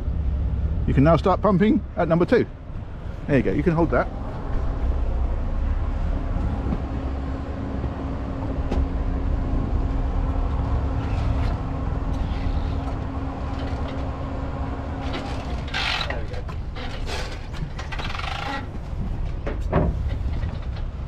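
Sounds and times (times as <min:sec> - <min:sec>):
low rumble: 0:00.0 - 0:15.7.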